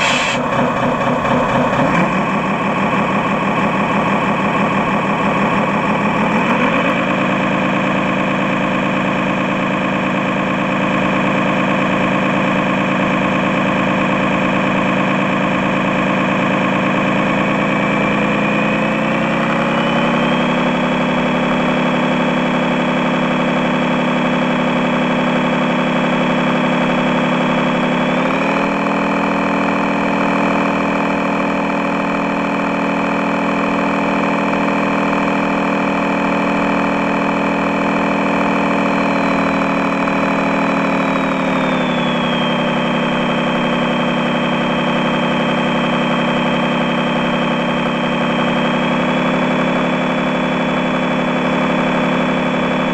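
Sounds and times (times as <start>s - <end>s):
model truck engine running: 0.0s - 52.9s.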